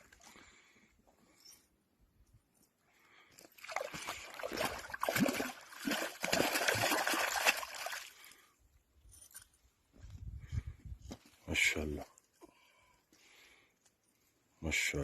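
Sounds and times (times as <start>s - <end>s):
water splashing and sloshing: 3.4s - 8.5s.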